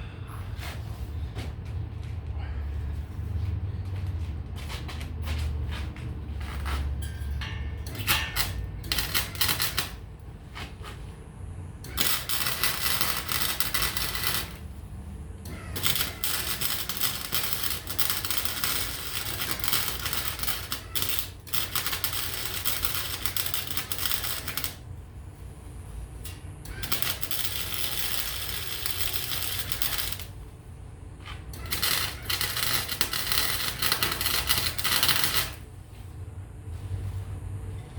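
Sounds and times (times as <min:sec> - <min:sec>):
welding arc crackling: 0:07.8 - 0:10.6, 0:11.8 - 0:24.9, 0:26.2 - 0:30.6, 0:31.3 - 0:35.7.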